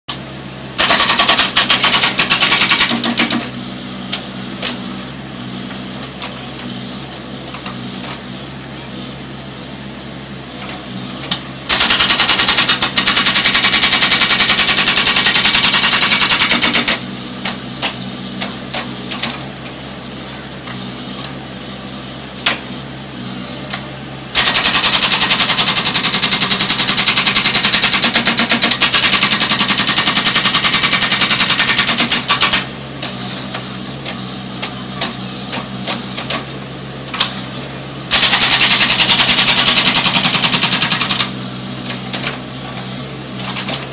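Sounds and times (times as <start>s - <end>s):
machine engine running: 0.3s - 43.9s
hydraulic breaker hammering: 0.8s - 3.5s, 11.7s - 18.5s, 24.3s - 33.2s, 38.1s - 41.4s.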